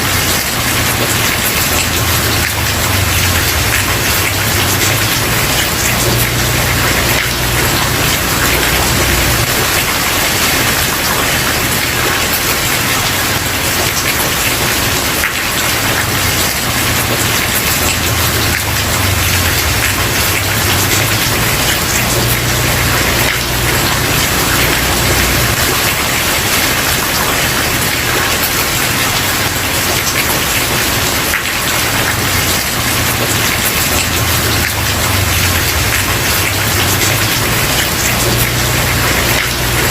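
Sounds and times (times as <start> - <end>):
heavy rain on wooden porch: 0.0 - 39.9.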